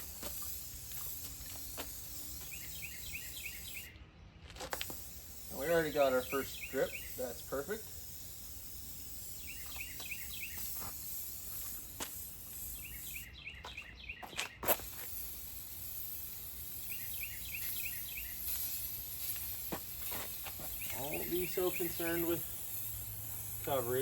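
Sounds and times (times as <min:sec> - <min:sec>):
aerosol spray can hissing: 0:00.0 - 0:03.9, 0:04.7 - 0:13.3, 0:14.6 - 0:24.0
high chirps: 0:00.0 - 0:04.0, 0:04.8 - 0:24.0
spray can click: 0:04.7 - 0:05.6.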